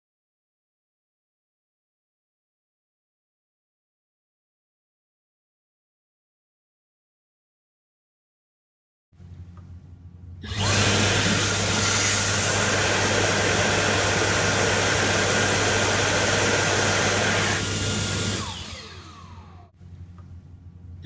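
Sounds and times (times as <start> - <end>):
hand dryer blowing: 10.4 - 19.7
motor spinning down with whine: 10.4 - 19.7.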